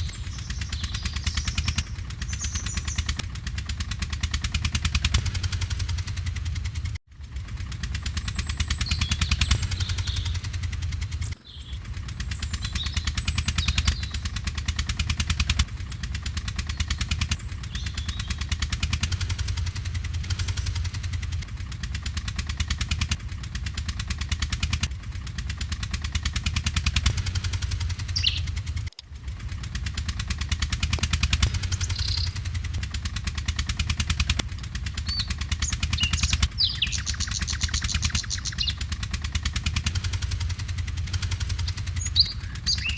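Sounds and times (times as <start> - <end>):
bird chirping: 0.0 - 3.1, 11.2 - 14.4, 16.6 - 18.5, 28.0 - 28.6, 31.6 - 32.5, 35.0 - 38.8, 41.5 - 42.9
model tractor mechanical pulsing: 0.0 - 42.9.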